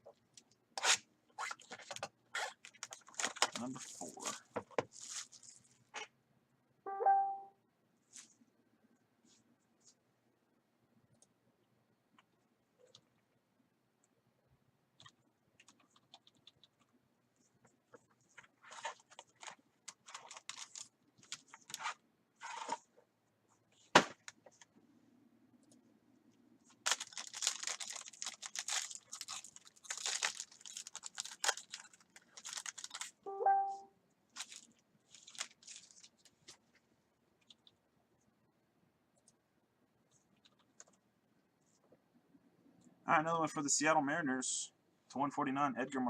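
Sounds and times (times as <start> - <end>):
plastic wrap crinkling and tearing: 0.8 - 5.8, 18.6 - 22.8, 26.7 - 33.2, 34.3 - 36.5.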